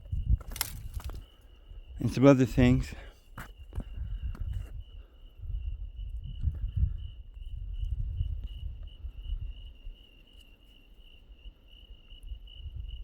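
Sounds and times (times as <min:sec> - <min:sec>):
crickets trilling: 0:00.0 - 0:13.0
low rumble on microphone: 0:03.8 - 0:09.8.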